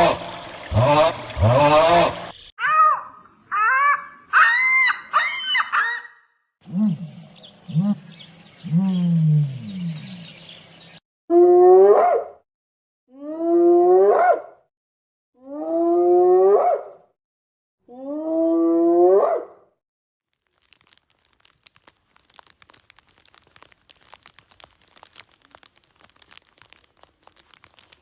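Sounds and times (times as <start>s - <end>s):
animal crying: 2.6s - 6.2s
faint crackling and crunching: 20.2s - 28.0s.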